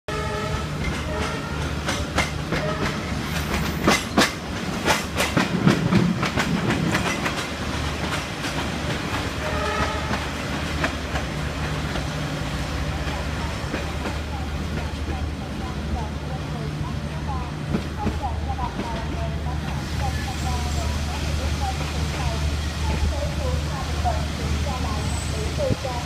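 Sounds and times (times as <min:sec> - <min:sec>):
train rumbling on rails: 0:00.1 - 0:26.0
train wheel clacks: 0:00.8 - 0:16.1, 0:17.3 - 0:20.8.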